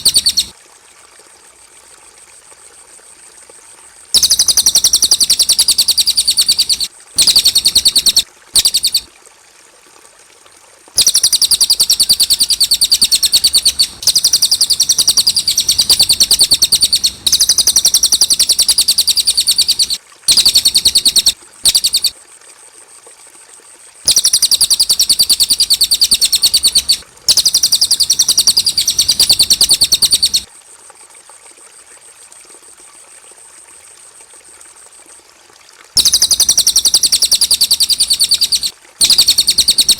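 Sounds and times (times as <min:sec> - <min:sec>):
songbird chirping: 0:00.0 - 0:00.5, 0:04.2 - 0:09.1, 0:11.0 - 0:22.1, 0:24.1 - 0:30.5, 0:36.0 - 0:39.9.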